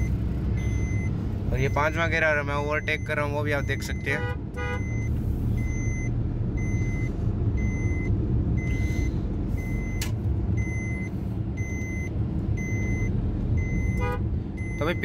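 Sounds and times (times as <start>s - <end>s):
high electronic beep: 0.0s - 4.1s, 4.8s - 10.0s, 10.6s - 14.0s
car engine and tyres rumbling: 0.0s - 15.0s.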